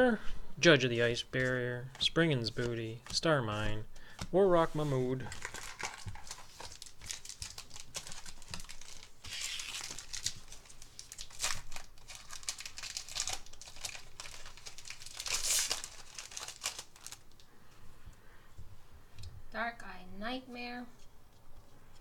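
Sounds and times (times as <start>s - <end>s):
cards clicking and rustling: 1.3s - 17.5s
foil wrappers crinkling and tearing: 1.4s - 17.5s.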